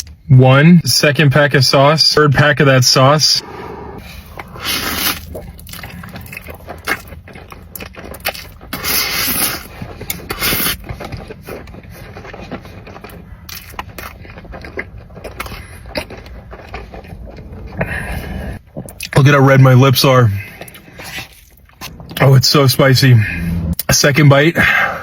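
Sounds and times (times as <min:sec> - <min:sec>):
noodle slurping: 0:04.0 - 0:18.6
chewing: 0:04.0 - 0:19.2, 0:20.4 - 0:22.2.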